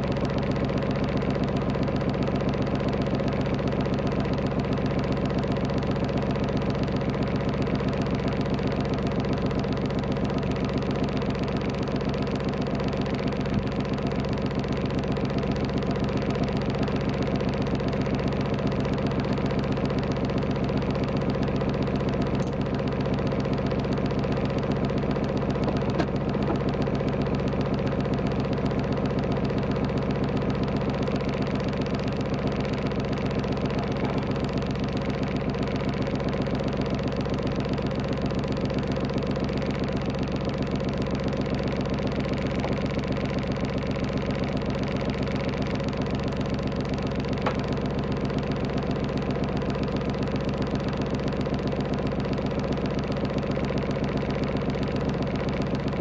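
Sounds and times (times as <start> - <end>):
boat engine idling: 0.0 - 56.0.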